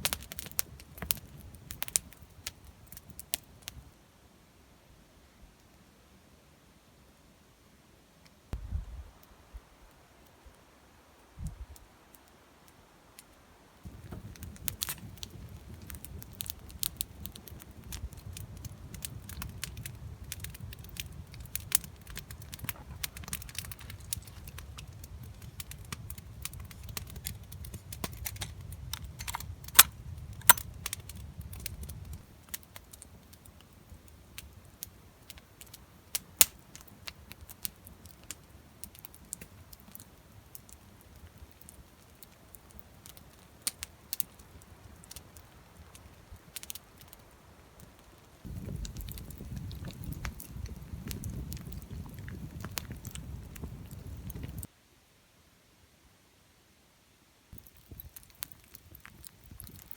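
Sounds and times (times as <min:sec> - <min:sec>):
campfire crackling and popping: 0:00.0 - 0:03.9, 0:13.2 - 0:54.7, 0:57.6 - 0:59.9.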